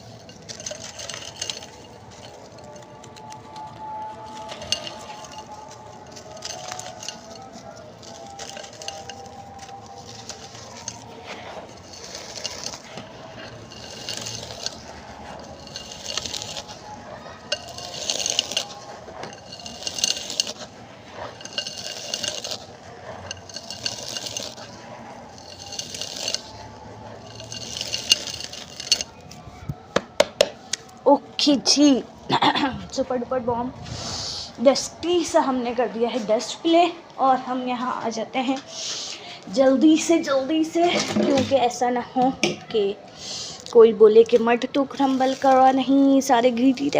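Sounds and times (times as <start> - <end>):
chalk crumbling by hand: 0.0 - 31.0, 43.5 - 46.9.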